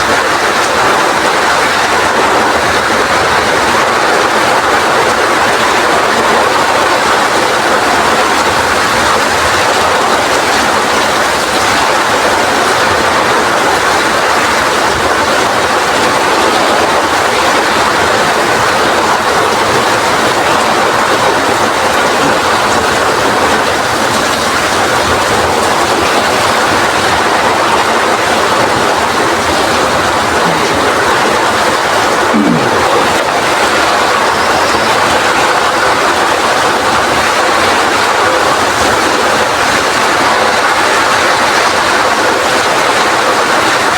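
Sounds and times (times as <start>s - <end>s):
heavy rain in strong wind: 0.0s - 43.9s.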